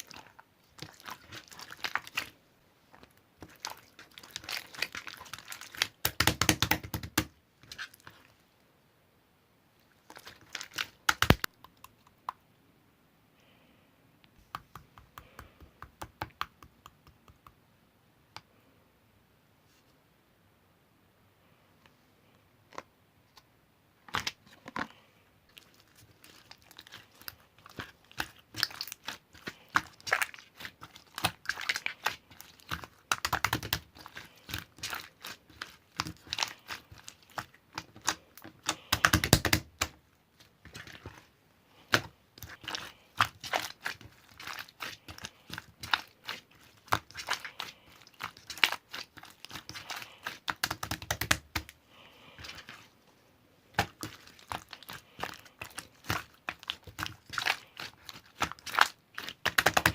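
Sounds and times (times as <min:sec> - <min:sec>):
crinkling handling noises: 0:09.8 - 0:11.5, 0:22.7 - 0:59.9.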